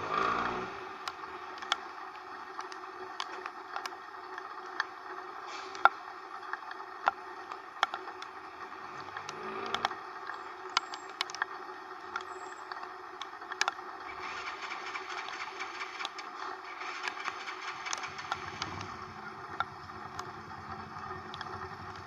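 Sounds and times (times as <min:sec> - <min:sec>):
road noise: 0:00.0 - 0:22.0
tricycle engine running: 0:00.0 - 0:22.0
sharp ticks and taps: 0:09.0 - 0:13.8.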